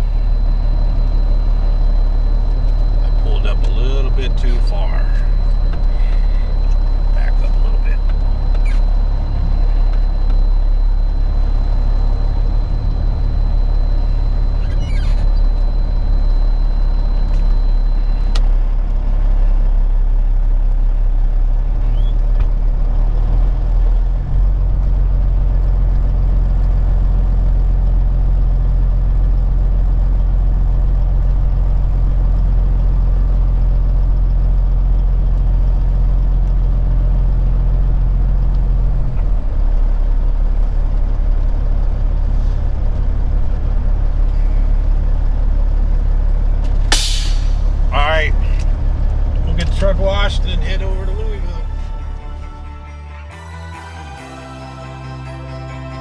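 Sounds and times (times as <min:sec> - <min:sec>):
thin high whine: 0:00.0 - 0:19.5, 0:49.6 - 0:56.0
diesel truck engine running: 0:00.0 - 0:56.0.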